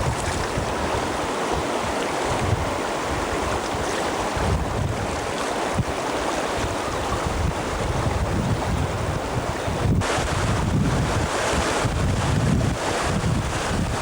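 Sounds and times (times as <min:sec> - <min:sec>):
river water rushing: 0:00.0 - 0:14.0
wind buffeting microphone: 0:00.0 - 0:14.0.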